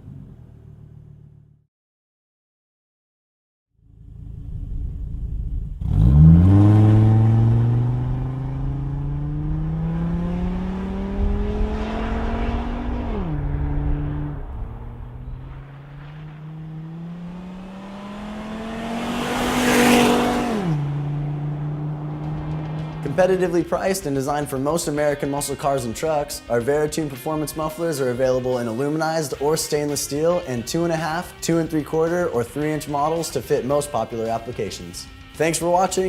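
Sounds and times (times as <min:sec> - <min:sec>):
truck engine accelerating: 0:00.0 - 0:01.6, 0:03.8 - 0:25.9.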